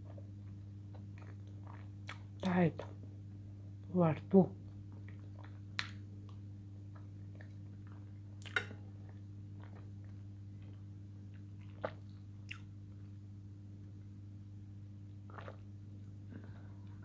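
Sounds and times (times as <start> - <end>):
low electrical hum: 0.0 - 17.0
person chewing food: 0.1 - 2.4, 5.0 - 12.7, 15.3 - 15.6.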